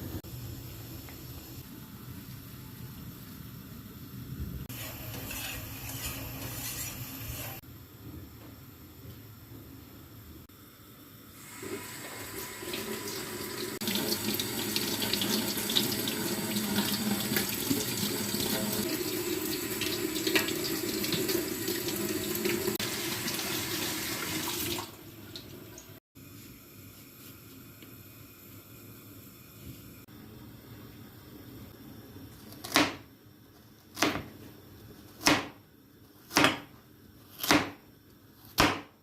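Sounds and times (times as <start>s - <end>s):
tap water running into sink: 11.5s - 26.0s.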